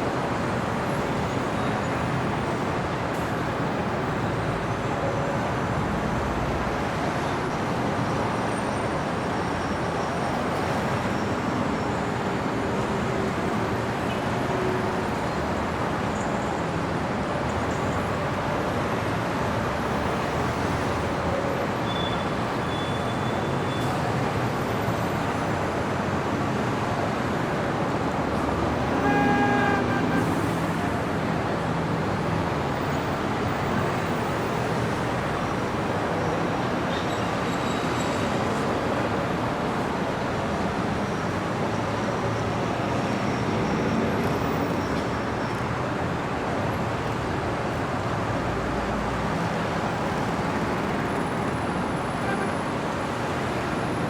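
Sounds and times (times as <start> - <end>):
city street traffic: 0.0 - 54.0
vehicle horn honking: 28.8 - 31.0.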